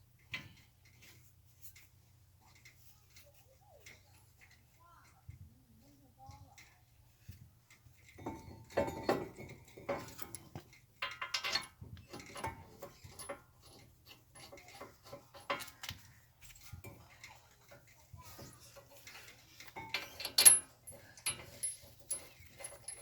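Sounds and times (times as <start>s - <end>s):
metal tools clinking and clanking: 8.0s - 23.0s.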